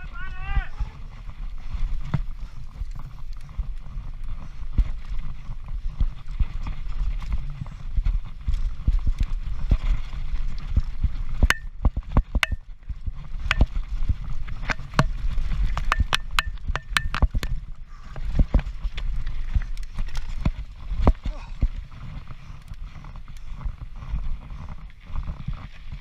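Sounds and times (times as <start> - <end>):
tyre and wind rumble: 0.0 - 26.0
bike knocks and rattles: 11.5 - 17.7.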